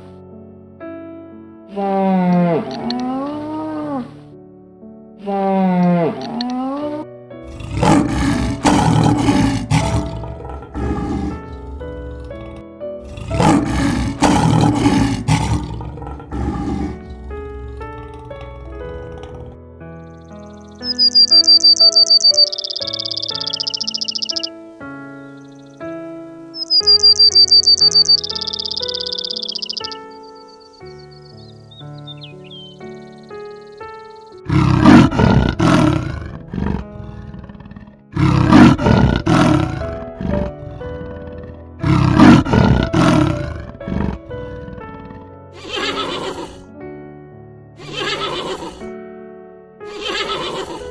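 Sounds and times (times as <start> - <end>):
background music with simple melody: 0.0 - 50.9
lion roaring: 1.7 - 4.2, 5.2 - 21.5, 34.4 - 46.7, 47.8 - 48.9, 49.9 - 50.9.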